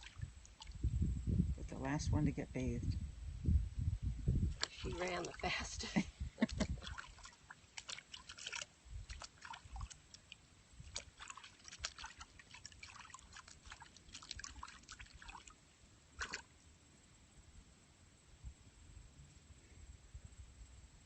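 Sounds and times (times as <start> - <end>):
water sloshing and splashing: 0.0 - 0.9, 4.5 - 15.6, 16.2 - 16.5.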